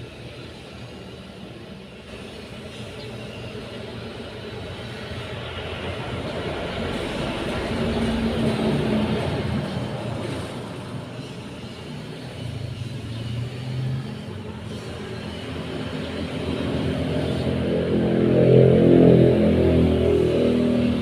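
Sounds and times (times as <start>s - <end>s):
vehicle engine passing: 16.4s - 21.0s.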